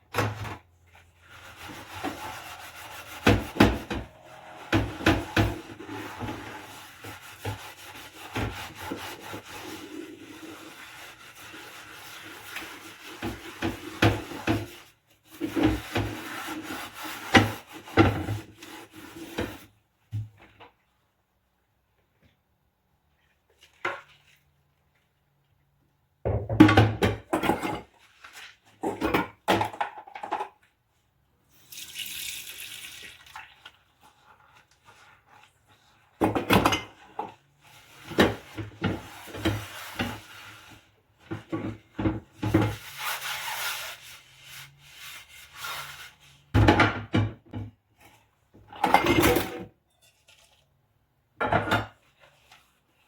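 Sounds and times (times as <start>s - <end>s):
tap water running: 1.3s - 14.7s, 31.5s - 34.0s
dishes clattering in sink: 1.7s - 9.3s, 26.3s - 28.0s, 28.8s - 30.6s, 36.1s - 40.3s, 46.5s - 47.8s, 48.6s - 50.7s, 51.4s - 52.2s.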